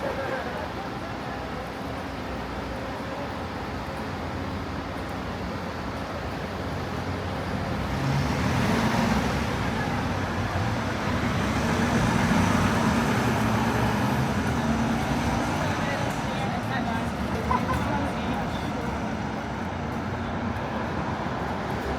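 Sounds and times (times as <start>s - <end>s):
roadway traffic rumble: 0.0s - 21.9s.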